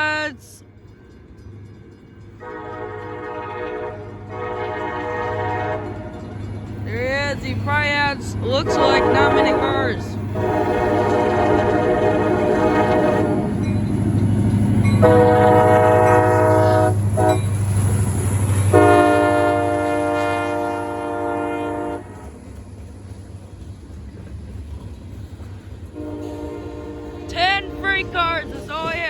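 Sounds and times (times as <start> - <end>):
locomotive engine rumble: 0.0 - 29.0
locomotive horn blasts: 2.4 - 6.1, 8.5 - 13.6, 15.0 - 17.5, 18.7 - 22.3, 26.0 - 29.0.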